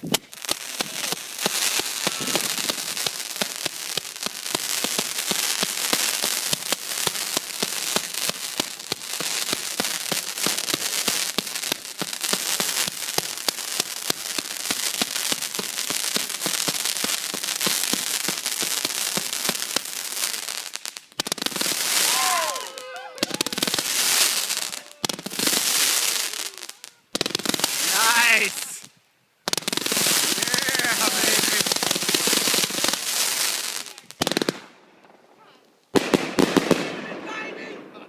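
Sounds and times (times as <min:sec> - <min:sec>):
fireworks cake firing: 0:00.0 - 0:28.9, 0:29.5 - 0:35.2, 0:36.0 - 0:38.0
fireworks crackling: 0:00.0 - 0:38.0.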